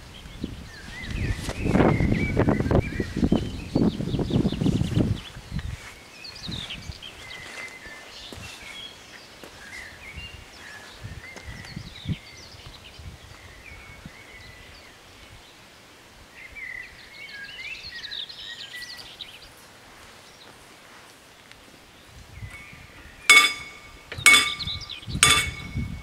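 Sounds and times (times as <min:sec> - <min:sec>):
wind buffeting microphone: 0:00.0 - 0:08.9, 0:09.5 - 0:15.5, 0:22.0 - 0:26.0
small birds chirping: 0:00.0 - 0:26.0.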